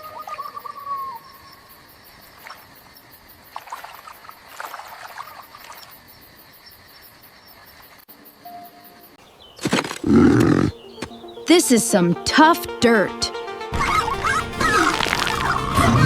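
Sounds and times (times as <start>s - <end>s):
faint insect chirring: 0.0s - 12.2s.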